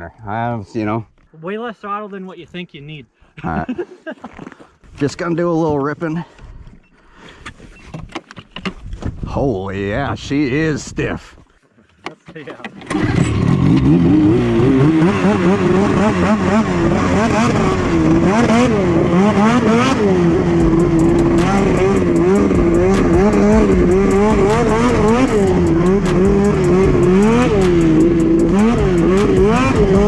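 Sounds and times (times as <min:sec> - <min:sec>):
snowmobile engine revving: 0:12.8 - 0:30.0.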